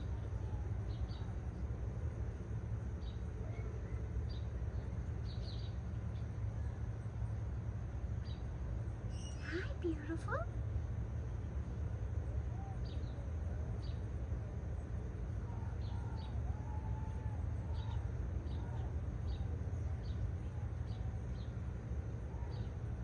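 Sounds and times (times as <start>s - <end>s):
small birds chirping: 0.0s - 1.7s, 2.7s - 10.5s, 17.3s - 23.0s
steady low hum: 0.0s - 23.0s.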